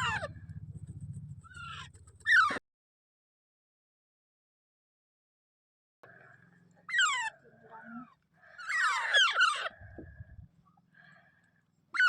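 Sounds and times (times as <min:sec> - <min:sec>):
parakeet screeching: 0:00.0 - 0:00.4, 0:01.5 - 0:02.6, 0:06.8 - 0:07.4, 0:08.5 - 0:09.8.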